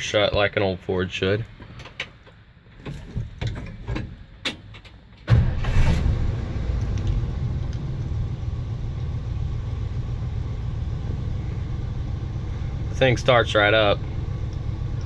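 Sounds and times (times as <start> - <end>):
engine cranking and starting: 5.3 - 8.3
engine idling: 5.3 - 15.0.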